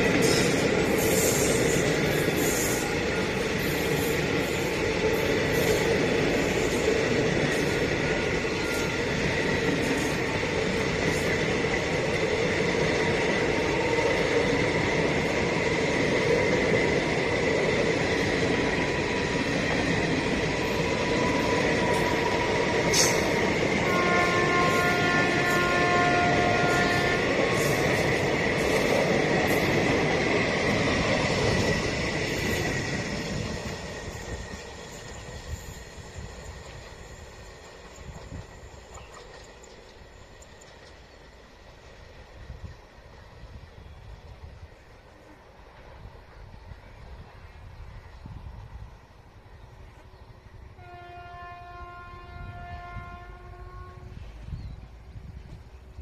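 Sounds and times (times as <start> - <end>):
train wheels rumbling on track: 0.0 - 56.0
train horn: 22.9 - 28.0, 50.7 - 54.6.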